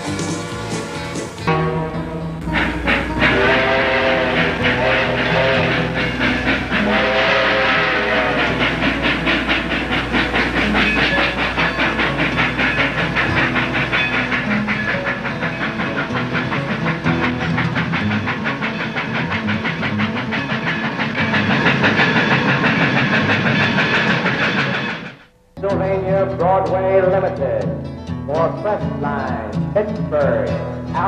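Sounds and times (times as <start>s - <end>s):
steam-like hiss: 0.0s - 1.5s, 2.3s - 25.3s
toy train whistle: 1.5s - 9.2s
toy train clicking clatter: 2.5s - 25.1s.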